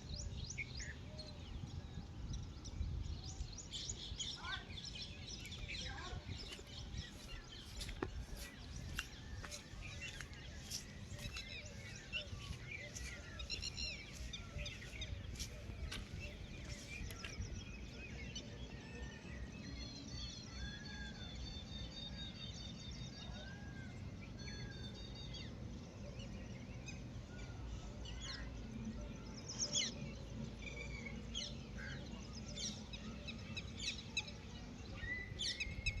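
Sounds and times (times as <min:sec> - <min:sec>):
birds chirping and calling: 0:02.9 - 0:18.0.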